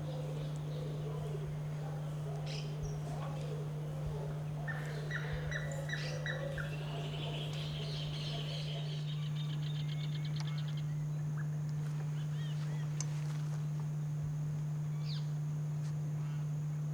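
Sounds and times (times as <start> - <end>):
wild birds calling: 0.0 - 13.0
steady low hum: 0.0 - 16.9.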